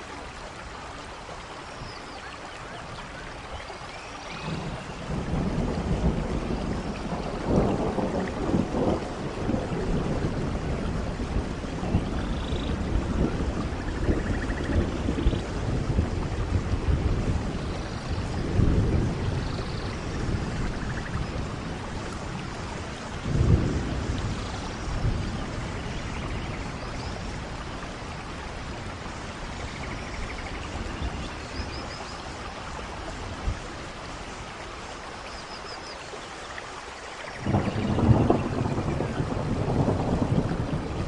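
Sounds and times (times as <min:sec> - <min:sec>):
steady rain: 0:00.0 - 0:41.0
thunder rolling: 0:04.5 - 0:27.6, 0:37.4 - 0:41.0.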